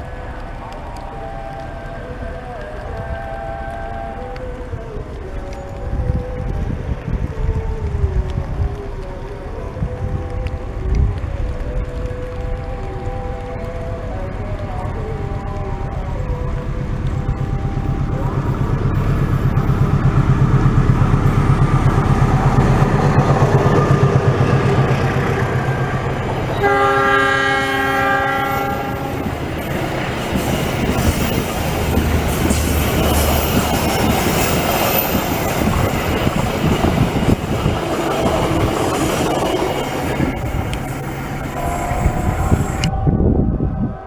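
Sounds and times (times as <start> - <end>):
locomotive engine throbbing: 0.0 - 44.0
train chord horn: 15.2 - 35.3, 38.4 - 43.0.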